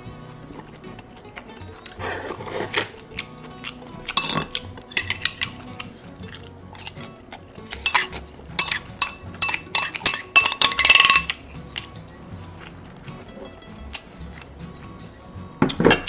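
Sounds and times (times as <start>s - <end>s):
cutlery clinking against dishes: 4.1s - 5.8s, 7.7s - 11.9s, 15.6s - 16.0s.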